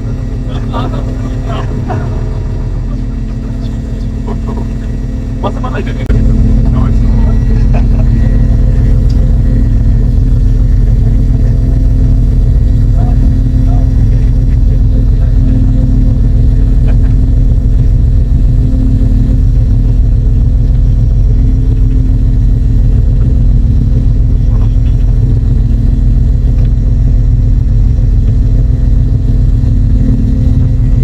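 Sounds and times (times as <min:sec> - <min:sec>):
boat engine rumbling: 0:00.0 - 0:31.0.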